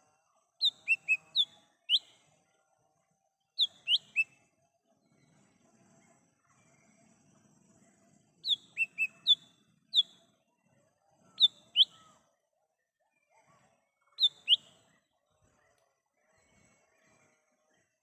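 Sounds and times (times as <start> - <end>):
bird whistled calls: 0.6 - 2.1, 3.6 - 4.3, 8.4 - 9.4, 11.4 - 12.0, 14.2 - 14.7.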